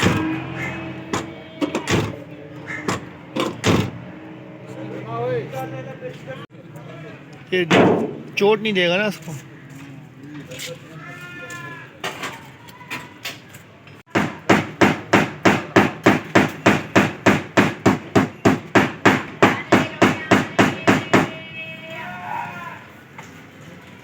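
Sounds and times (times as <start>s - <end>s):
hammer striking metal hinge: 0.0s - 2.2s, 2.8s - 4.0s, 7.7s - 8.3s, 14.1s - 21.3s.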